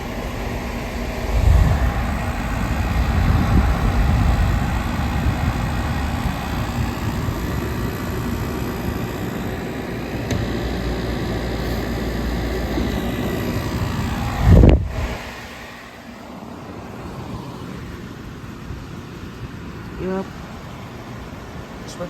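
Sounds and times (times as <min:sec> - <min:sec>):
low rumble: 0:00.0 - 0:09.4
air conditioner humming: 0:00.0 - 0:22.0.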